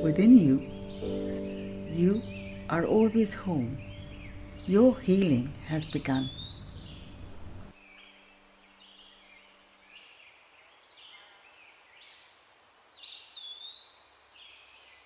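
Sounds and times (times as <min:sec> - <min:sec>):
birds chirping and whistling: 0:00.0 - 0:07.6
faint low hum: 0:00.0 - 0:07.7.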